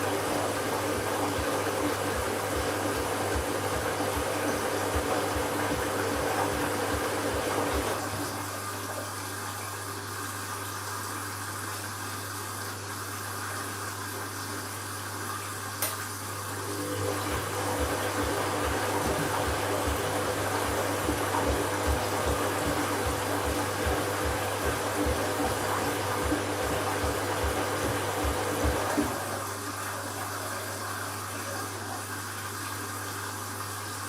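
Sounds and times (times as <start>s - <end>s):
water moving in washing machine: 0.0s - 34.0s
low motor hum: 16.8s - 29.3s.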